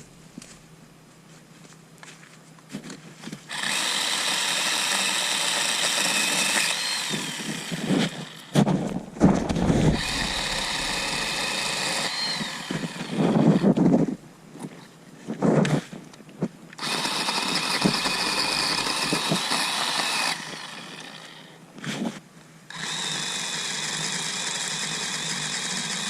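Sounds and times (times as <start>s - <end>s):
electric power tool whining: 3.5s - 13.9s, 16.8s - 21.6s, 22.7s - 26.0s
heavy thumps: 8.6s - 11.6s
rough crackling: 8.6s - 14.1s.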